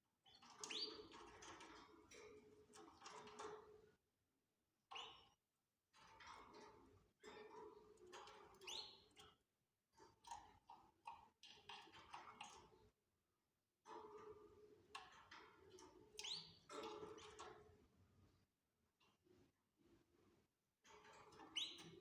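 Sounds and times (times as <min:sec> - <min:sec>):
canaries chirping and twittering: 0:00.4 - 0:01.6.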